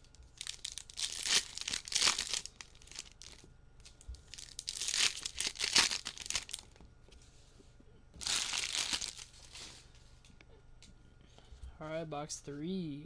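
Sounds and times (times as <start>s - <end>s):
plastic wrappers crinkling: 0.0s - 6.8s, 8.2s - 10.0s.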